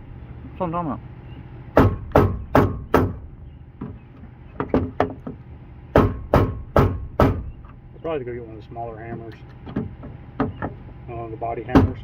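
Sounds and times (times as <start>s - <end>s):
hammer on sheet metal: 1.8s - 3.2s, 6.0s - 7.5s.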